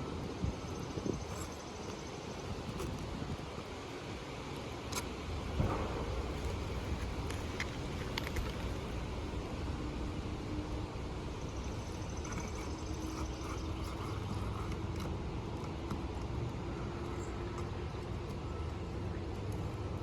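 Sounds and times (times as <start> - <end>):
faint humming drone: 0.0 - 20.0
low outdoor rumble: 0.0 - 20.0.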